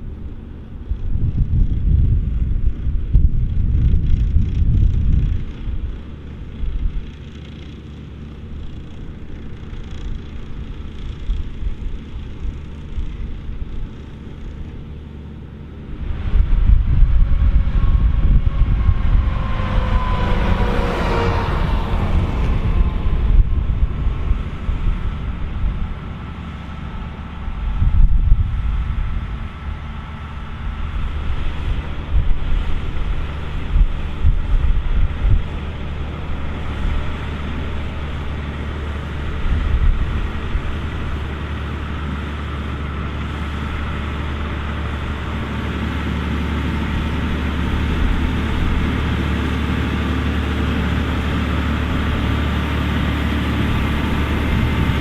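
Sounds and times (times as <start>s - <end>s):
wind buffeting microphone: 0.0s - 7.6s, 15.8s - 55.0s
low machinery hum: 0.0s - 55.0s.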